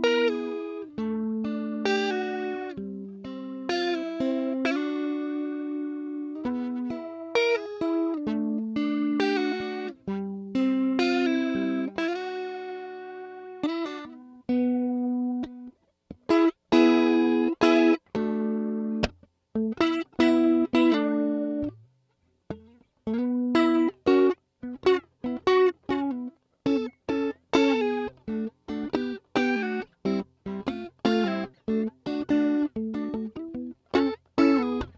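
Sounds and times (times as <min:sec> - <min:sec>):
electric guitar with flanger: 0:22.5 - 0:34.9.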